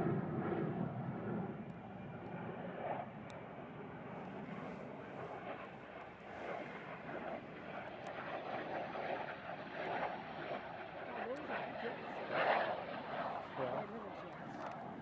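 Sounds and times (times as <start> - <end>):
aircraft engine rushing: 0.0 - 15.0.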